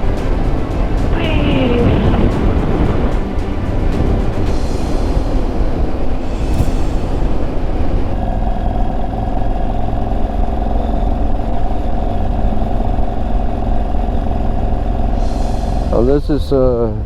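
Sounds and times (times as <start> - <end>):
wind rush on microphone: 0.0 - 10.3.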